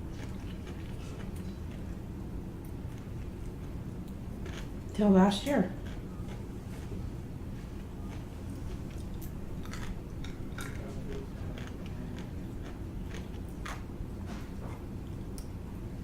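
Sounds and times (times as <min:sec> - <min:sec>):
steady low hum: 0:00.0 - 0:16.0
person chewing and biting: 0:00.1 - 0:02.0, 0:04.4 - 0:04.8, 0:05.8 - 0:06.5, 0:08.0 - 0:13.9.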